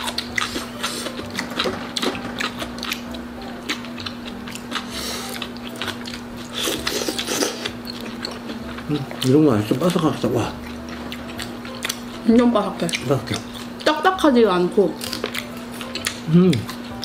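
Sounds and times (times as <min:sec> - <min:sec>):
low hum: 0:00.0 - 0:06.5
crunching and chewing fried food: 0:00.0 - 0:14.2, 0:14.9 - 0:17.0.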